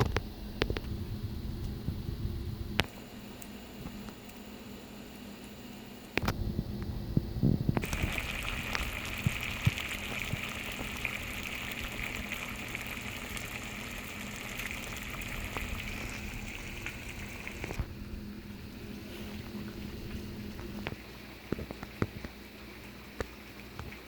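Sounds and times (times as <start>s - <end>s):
water rushing: 7.8s - 20.6s.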